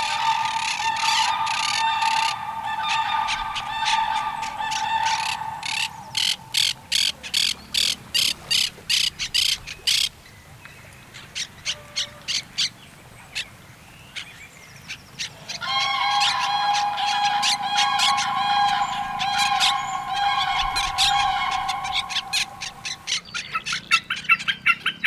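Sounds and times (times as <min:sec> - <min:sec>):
steady held tone: 0:00.0 - 0:06.9, 0:15.6 - 0:23.2
harsh bird calls: 0:00.0 - 0:10.1, 0:14.2 - 0:25.0.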